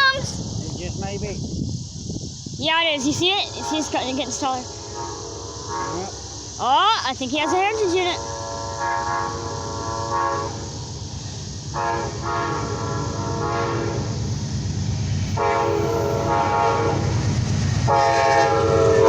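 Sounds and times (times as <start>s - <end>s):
train rumble: 0.0s - 19.0s
locomotive air horn blasts: 3.4s - 6.3s, 7.4s - 10.7s, 11.7s - 14.1s, 15.4s - 17.1s, 17.9s - 19.0s.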